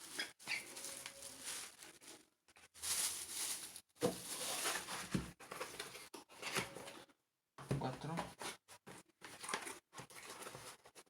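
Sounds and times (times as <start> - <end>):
plastic packaging rustling: 0.0 - 6.0
plastic cups being handled: 0.0 - 7.0, 7.6 - 11.0.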